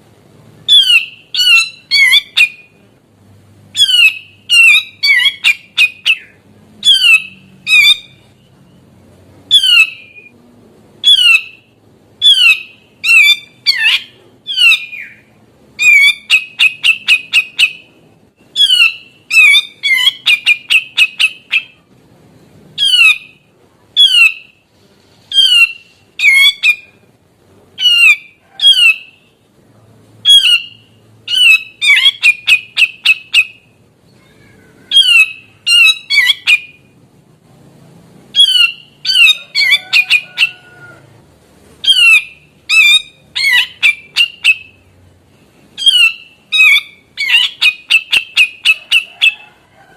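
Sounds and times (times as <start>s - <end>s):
bird calling sharp notes: 0.7s - 2.8s, 3.7s - 8.9s, 9.5s - 10.4s, 11.0s - 21.9s, 22.8s - 24.6s, 25.3s - 27.1s, 30.2s - 37.0s, 38.3s - 41.0s, 41.8s - 49.5s.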